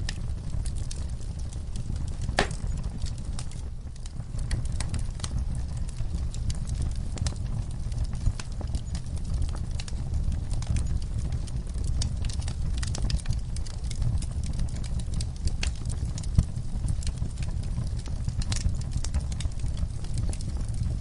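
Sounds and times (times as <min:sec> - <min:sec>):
fire crackling and popping: 0:00.0 - 0:21.0
sharp fire pop: 0:02.3 - 0:02.8.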